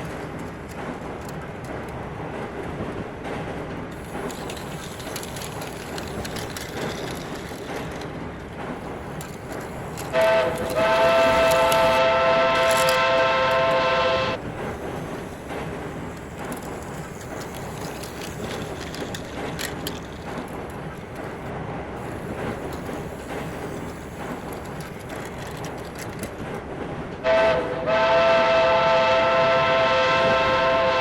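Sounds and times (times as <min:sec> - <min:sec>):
toy train rattling on track: 0:00.0 - 0:02.0, 0:03.9 - 0:13.8, 0:14.4 - 0:26.6
steam locomotive whistle: 0:10.1 - 0:14.4, 0:27.2 - 0:31.0.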